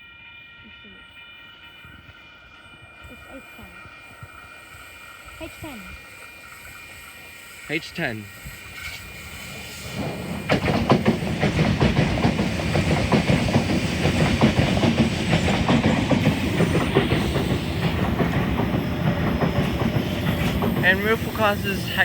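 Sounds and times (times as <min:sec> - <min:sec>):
train rumble: 0:00.0 - 0:22.0
train wheels clacking over rail joints: 0:08.4 - 0:22.0.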